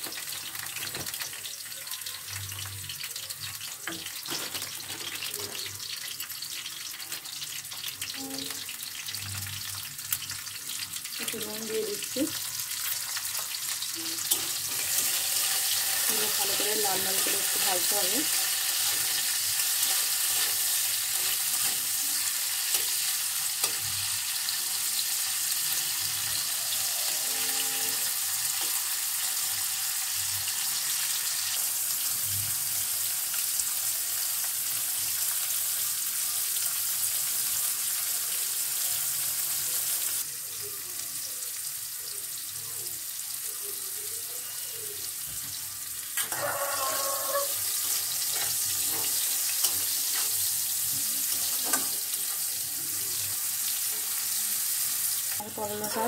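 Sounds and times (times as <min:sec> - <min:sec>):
vegetables sizzling in hot oil: 0:00.0 - 0:56.0
metal spatula scraping: 0:12.8 - 0:24.2, 0:47.5 - 0:52.5.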